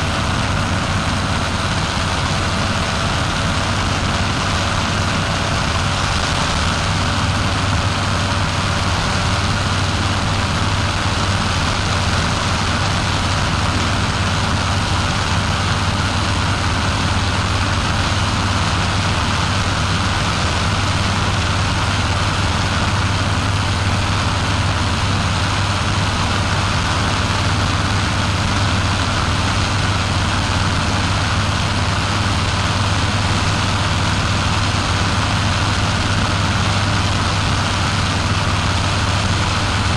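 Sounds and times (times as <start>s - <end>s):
constant rushing noise: 0.0s - 39.9s
paramotor engine droning: 0.0s - 39.9s.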